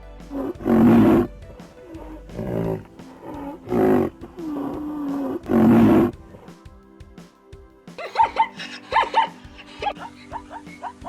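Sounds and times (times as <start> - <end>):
quieter animal calls: 0.3 - 1.3, 2.0 - 6.1
animal calling loudly: 3.6 - 4.1.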